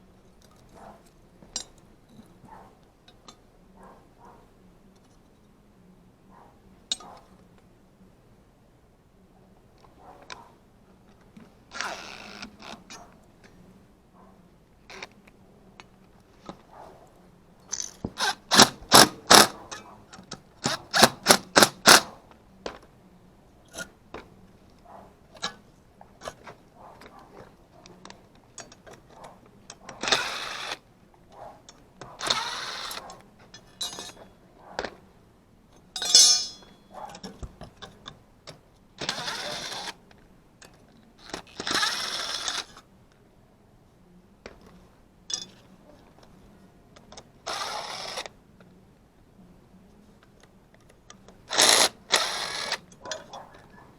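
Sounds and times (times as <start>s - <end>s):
tool clicks: 17.7s - 19.6s, 20.2s - 22.1s, 36.0s - 36.8s
sharp metal strikes: 36.0s - 36.8s.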